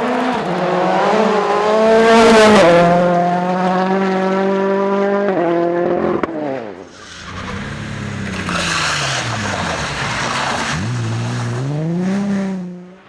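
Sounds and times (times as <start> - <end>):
rally car engine revving: 0.0 - 13.0
tyre noise: 6.9 - 12.7.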